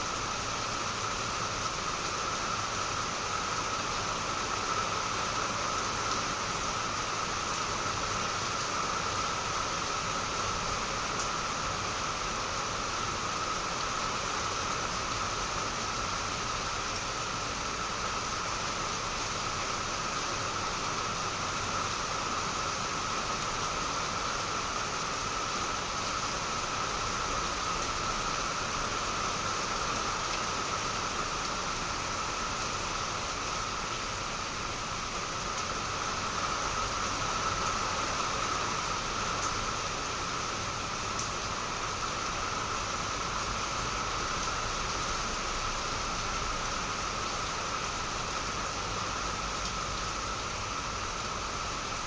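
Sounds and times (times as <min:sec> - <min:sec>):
heavy rain falling: 0:00.0 - 0:52.0.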